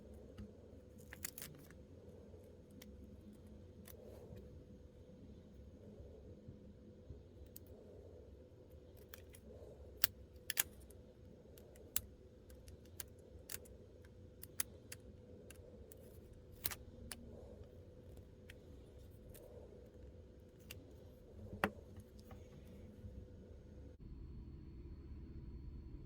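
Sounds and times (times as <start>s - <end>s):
faint steady hum: 0.0s - 26.0s
plastic pieces clicking and snipping: 1.0s - 1.8s, 10.0s - 10.9s, 11.6s - 13.7s, 14.4s - 17.4s.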